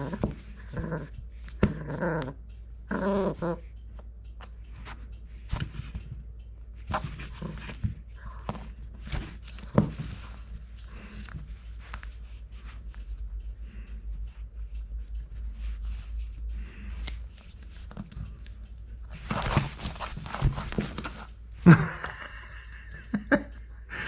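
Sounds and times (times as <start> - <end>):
puppy growling: 0.0 - 3.7, 6.9 - 11.8, 19.1 - 22.2
puppy scuffling and chewing: 0.0 - 22.2.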